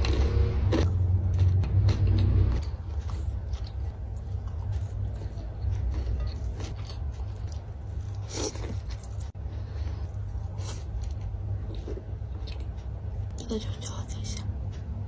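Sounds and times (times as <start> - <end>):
low rumble: 0.0 - 8.2
chewing fried food: 0.0 - 15.0.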